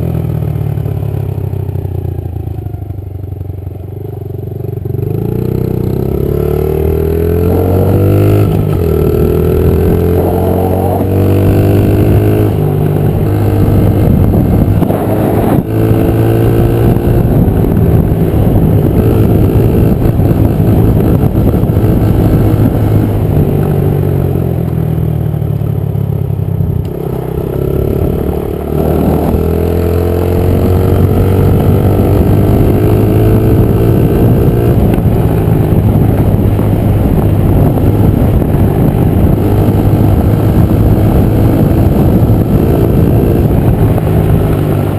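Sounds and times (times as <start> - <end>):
dirt bike engine revving: 5.1 - 23.4, 26.9 - 36.4.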